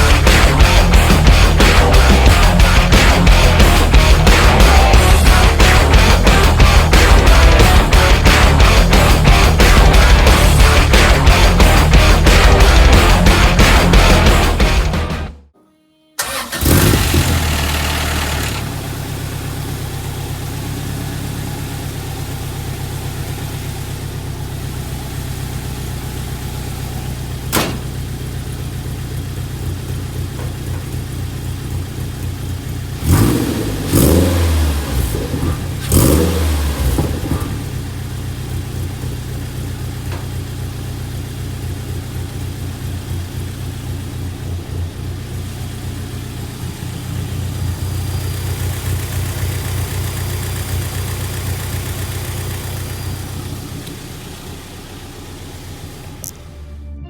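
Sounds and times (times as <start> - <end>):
engine throttle blips: 0.0 - 15.4, 16.2 - 57.0
truck engine idling: 0.0 - 15.4, 16.2 - 57.0
sharp click: 27.5 - 27.9.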